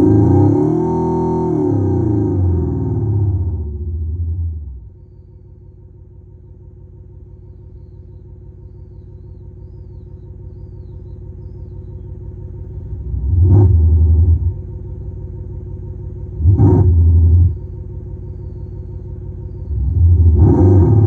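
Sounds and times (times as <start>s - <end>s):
loud electronic engine revs: 0.0s - 4.6s, 12.9s - 14.7s, 16.3s - 17.7s, 19.7s - 21.0s
electronic engine rumble: 1.4s - 21.0s.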